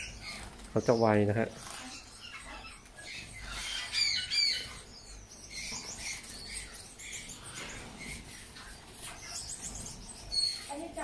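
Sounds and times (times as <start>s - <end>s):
small birds chirping and squawking: 0.0s - 11.0s.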